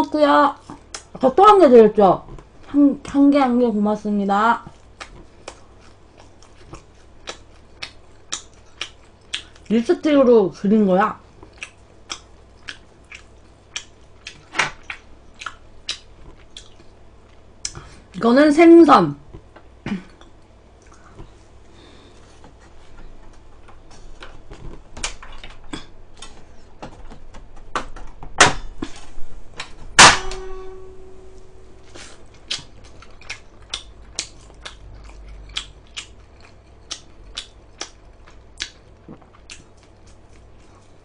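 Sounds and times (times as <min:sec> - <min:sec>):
person chewing: 0:00.7 - 0:01.2, 0:04.7 - 0:09.7, 0:11.3 - 0:18.1, 0:19.3 - 0:26.8, 0:31.7 - 0:41.0.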